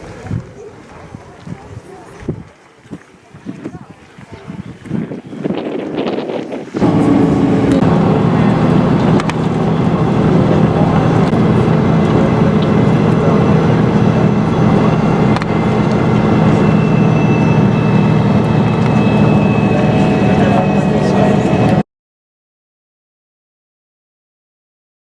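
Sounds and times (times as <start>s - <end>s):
bus engine humming: 6.8s - 21.8s.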